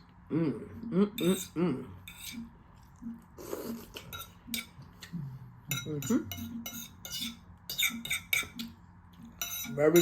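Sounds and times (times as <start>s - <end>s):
utensils clinking on a dish: 4.0s - 4.8s, 5.7s - 8.7s, 9.3s - 10.0s.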